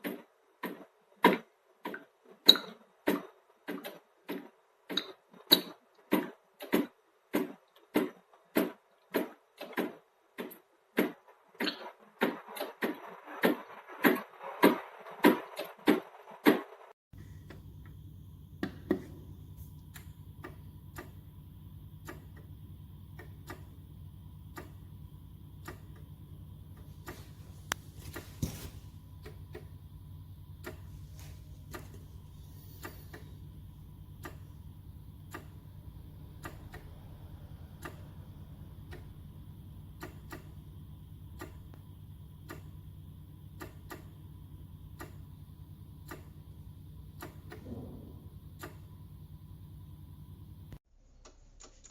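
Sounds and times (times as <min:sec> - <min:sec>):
regular ticking: 0:17.2 - 0:50.8
low steady hum: 0:17.2 - 0:51.8.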